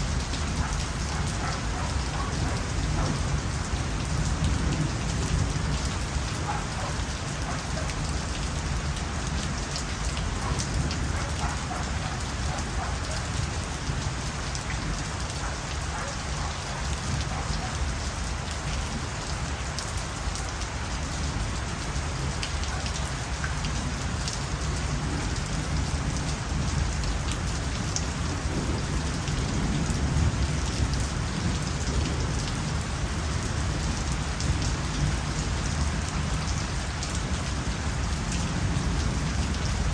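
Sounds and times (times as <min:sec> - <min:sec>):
raindrops ticking: 0:00.0 - 0:19.0
steady rain falling: 0:00.0 - 0:39.9.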